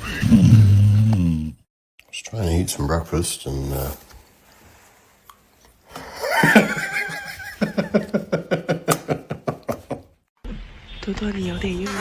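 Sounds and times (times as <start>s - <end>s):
rhythmic laughter: 6.1s - 10.1s.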